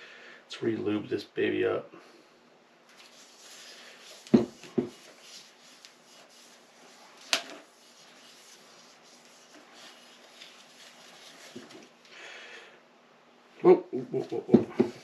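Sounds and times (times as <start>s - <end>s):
dull knocks on workbench: 4.3s - 4.9s.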